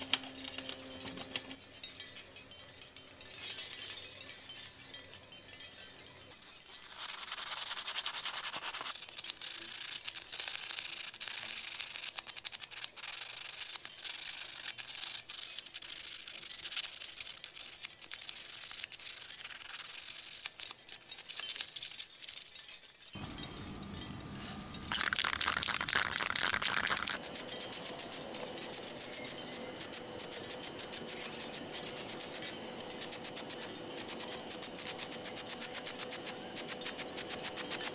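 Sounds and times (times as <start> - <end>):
sandpaper scratching: 6.8 - 20.7
outdoor air noise: 23.1 - 37.9
spray paint can hissing: 24.9 - 27.4.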